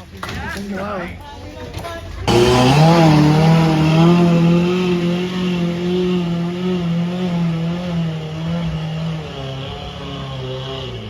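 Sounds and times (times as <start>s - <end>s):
engine at high revs: 2.3s - 11.0s.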